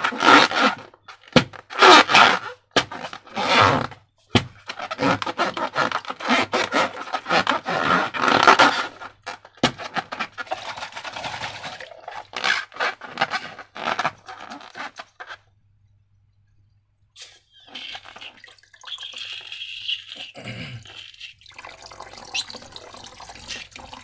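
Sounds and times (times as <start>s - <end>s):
slime squishing and scraping: 4.6s - 15.4s.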